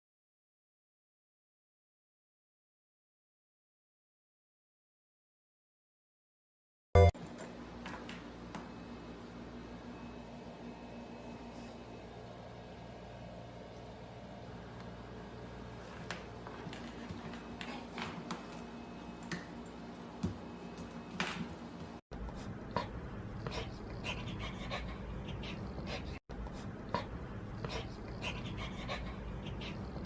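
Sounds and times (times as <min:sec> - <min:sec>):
puppy sounds: 0:22.4 - 0:30.0.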